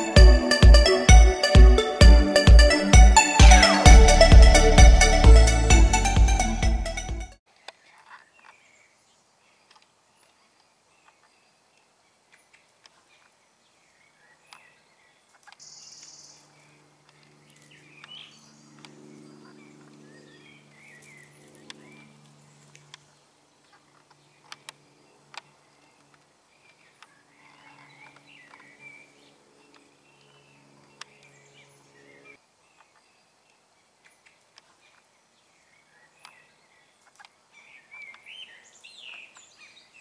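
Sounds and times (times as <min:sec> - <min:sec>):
bird chirps: 0:15.5 - 0:16.5.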